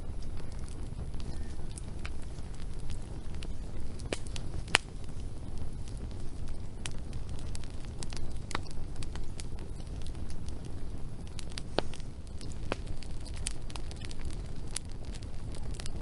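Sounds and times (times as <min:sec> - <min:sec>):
low rush of flames: 0:00.0 - 0:16.0
wood crackling and popping: 0:00.0 - 0:16.0.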